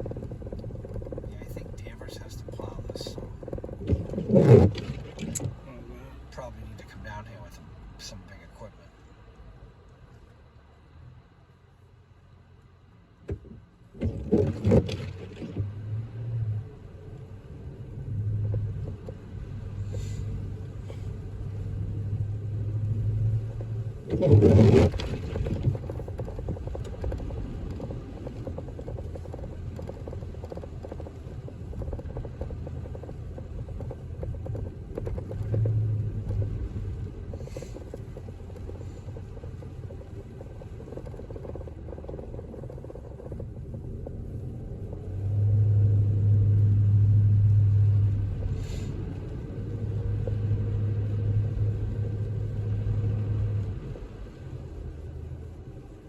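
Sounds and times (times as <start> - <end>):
road and engine rumble: 0.0 - 56.0.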